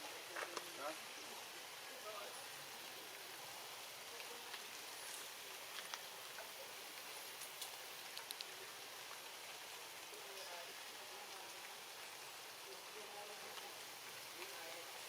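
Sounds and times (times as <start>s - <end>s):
faint rain hiss: 0.0s - 15.0s
sharp drip ticks: 5.7s - 9.6s.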